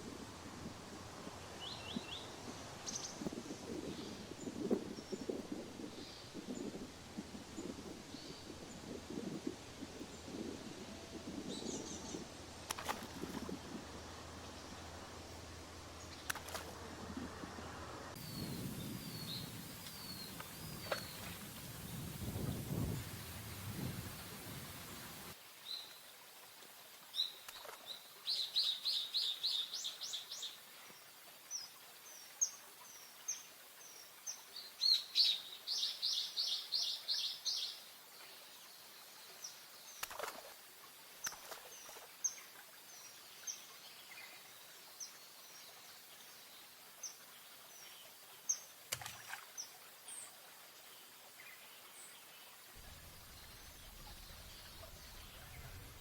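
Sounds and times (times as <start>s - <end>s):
low rumble: 52.8s - 56.0s.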